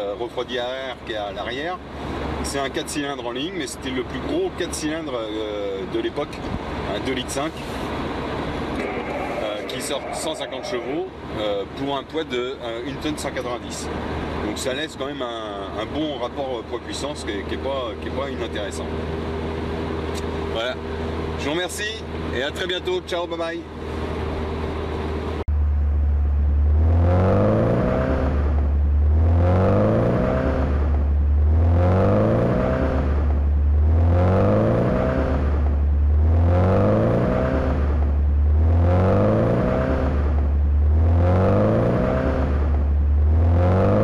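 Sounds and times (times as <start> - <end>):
road noise: 0.0 - 44.0
car engine accelerating: 6.3 - 11.8, 23.6 - 44.0.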